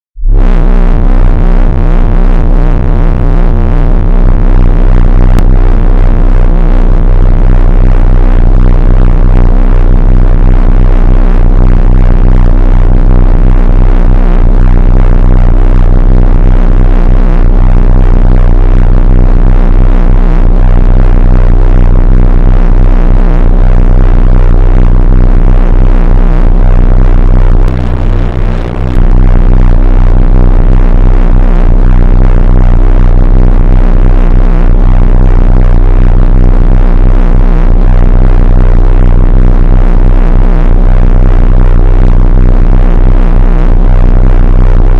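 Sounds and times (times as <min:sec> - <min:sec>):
pulsing electronic drone: 0:00.2 - 0:44.9.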